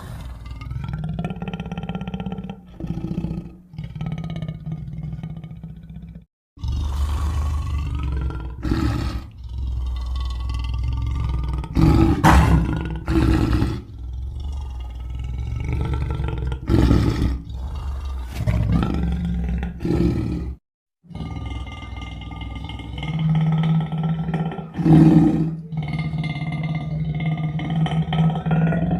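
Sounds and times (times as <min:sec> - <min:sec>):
creature growls and roars: 0:00.0 - 0:28.9.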